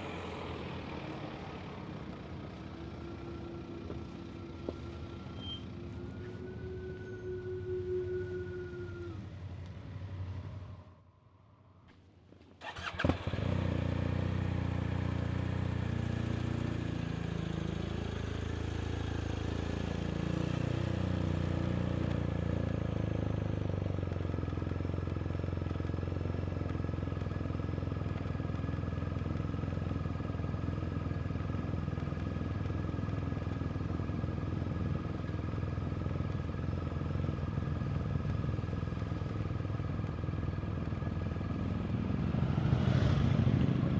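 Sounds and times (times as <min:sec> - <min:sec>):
motorcycle engine running: 0:12.7 - 0:42.6.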